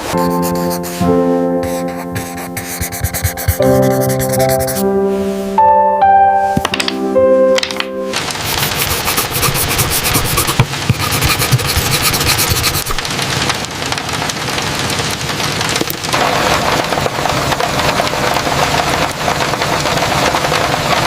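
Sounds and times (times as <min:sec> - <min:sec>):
heavy rain falling: 0:08.2 - 0:08.7, 0:13.0 - 0:21.0.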